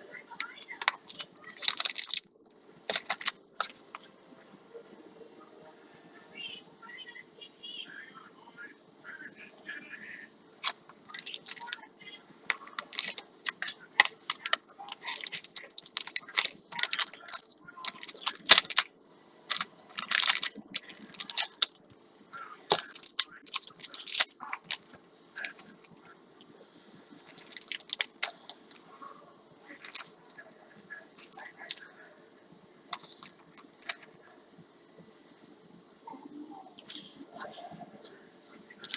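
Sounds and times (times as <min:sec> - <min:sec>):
packaging rustling and crinkling: 0:00.6 - 0:04.0, 0:10.6 - 0:18.9, 0:19.5 - 0:21.8, 0:22.7 - 0:26.0, 0:27.2 - 0:28.8, 0:29.7 - 0:30.6, 0:31.2 - 0:31.9, 0:32.9 - 0:34.1.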